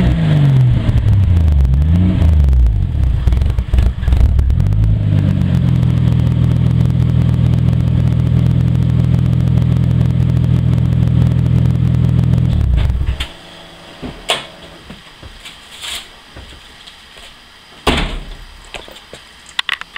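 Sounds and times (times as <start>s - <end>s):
car engine idling: 0.6s - 14.9s.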